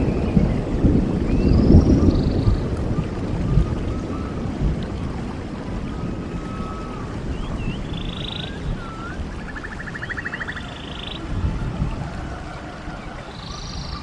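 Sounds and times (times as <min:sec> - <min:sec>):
rushing stream water: 0:00.0 - 0:14.0
birds whistling: 0:01.3 - 0:02.6, 0:03.6 - 0:04.4, 0:05.9 - 0:11.3, 0:12.8 - 0:14.0
bird trills: 0:06.4 - 0:11.3, 0:13.3 - 0:14.0.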